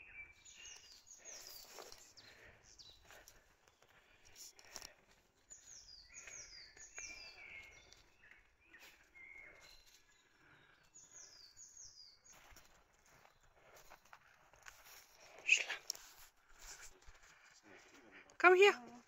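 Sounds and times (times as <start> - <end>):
soft rustling crackles: 0.4 - 11.2, 12.2 - 19.0.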